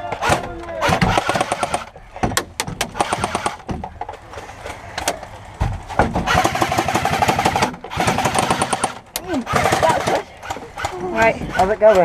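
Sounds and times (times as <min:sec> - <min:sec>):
airsoft rifles on full auto: 0:00.0 - 0:01.9, 0:02.9 - 0:03.7, 0:06.3 - 0:12.0.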